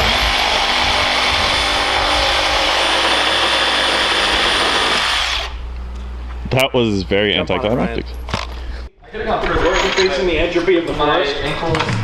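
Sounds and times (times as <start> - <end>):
power tool whirring: 0.0 - 5.6.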